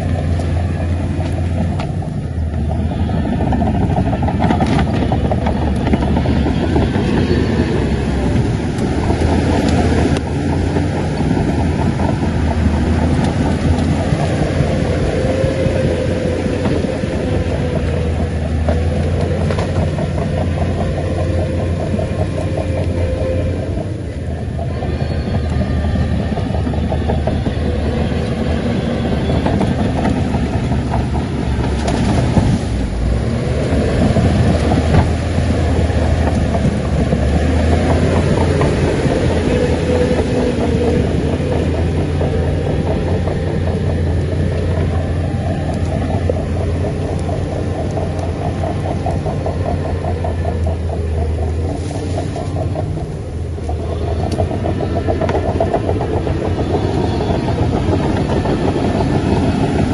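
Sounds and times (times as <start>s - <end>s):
bulldozer diesel engine running: 0.0s - 59.9s
steel tracks clattering: 0.0s - 59.9s.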